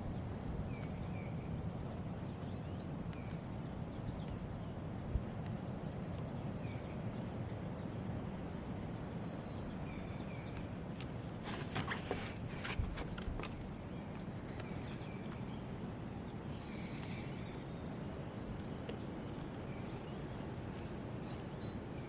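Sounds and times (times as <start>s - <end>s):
clicks and scrapes: 10.6s - 13.7s.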